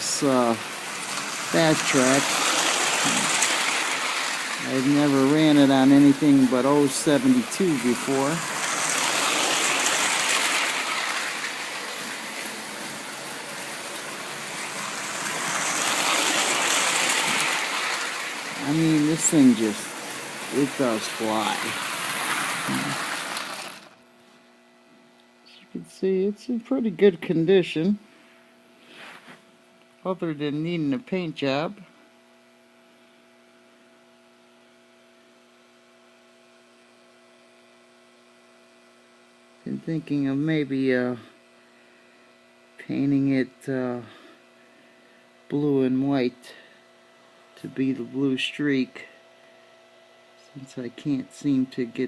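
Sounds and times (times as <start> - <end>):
toy train whirring on rails: 0.0 - 24.0
faint mains hum: 0.0 - 52.0.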